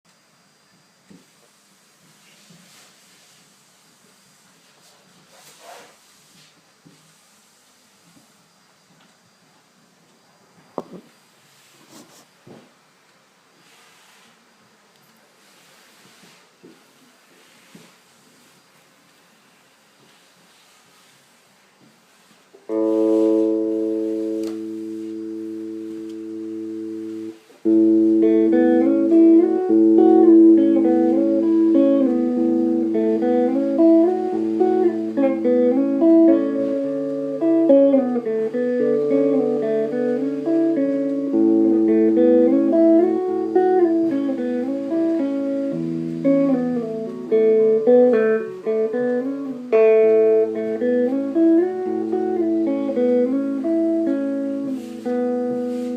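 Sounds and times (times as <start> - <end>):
clean electric guitar playing: 22.7 - 55.9.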